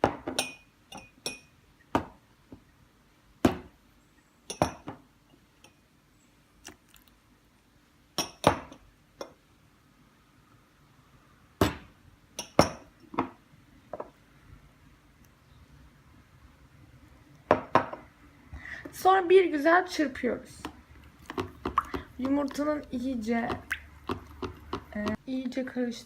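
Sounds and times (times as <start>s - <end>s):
glass containers clinking on bowl: 0.3s - 1.5s, 4.5s - 5.0s.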